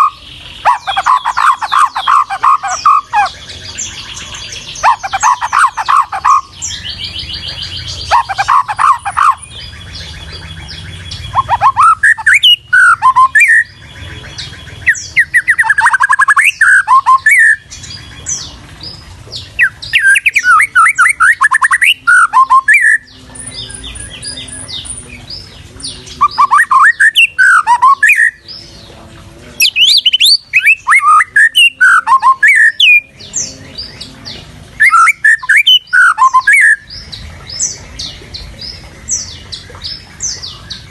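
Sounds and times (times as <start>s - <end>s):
bird singing whistled phrases: 4.8s - 18.4s, 19.6s - 24.9s, 26.1s - 28.4s, 29.6s - 33.1s, 34.8s - 36.9s.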